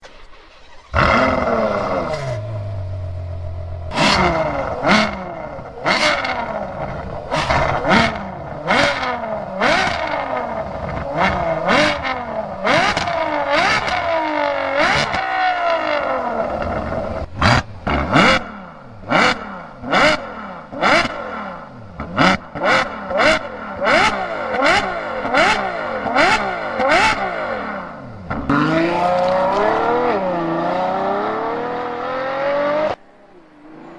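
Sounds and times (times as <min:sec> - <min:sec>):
engine revving in sharp blips: 0:00.0 - 0:33.0
car engine starting and idling: 0:00.0 - 0:33.9.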